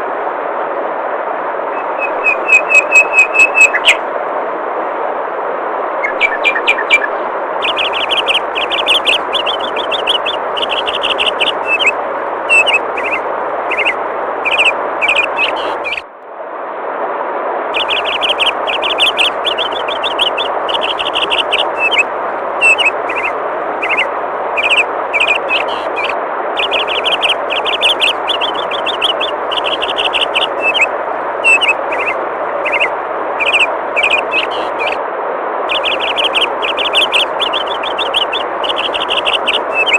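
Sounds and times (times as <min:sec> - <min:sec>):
songbirds chirping trills: 0:01.8 - 0:04.0, 0:06.0 - 0:16.1, 0:17.8 - 0:35.0, 0:35.7 - 0:39.9
river water flowing: 0:07.0 - 0:16.1, 0:17.6 - 0:39.9.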